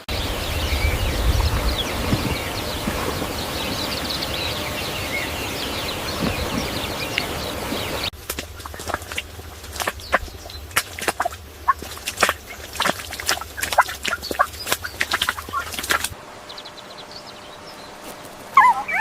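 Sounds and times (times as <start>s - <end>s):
small birds chirping: 0.0s - 19.0s
steady background noise: 0.0s - 19.0s
low rumble: 0.1s - 13.6s.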